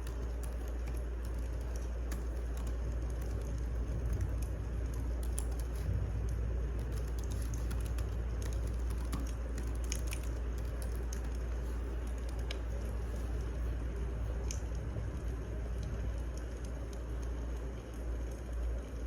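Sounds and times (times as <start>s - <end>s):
wood fire crackling and popping: 0.1s - 19.0s
fire low rumble: 2.8s - 8.5s, 11.5s - 19.0s.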